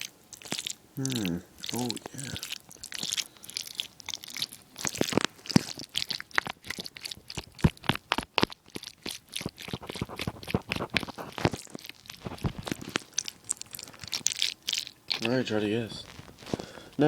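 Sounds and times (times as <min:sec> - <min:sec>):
fork scraping food and plate: 0:09.3 - 0:13.1.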